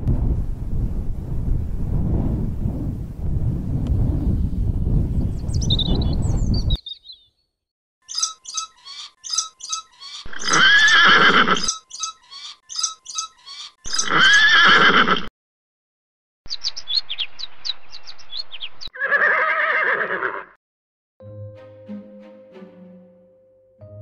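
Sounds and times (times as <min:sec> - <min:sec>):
repeating high chirp: 0:08.0 - 0:11.0, 0:11.6 - 0:14.2
horse whinnying: 0:10.3 - 0:11.7, 0:13.9 - 0:15.3, 0:19.0 - 0:20.6.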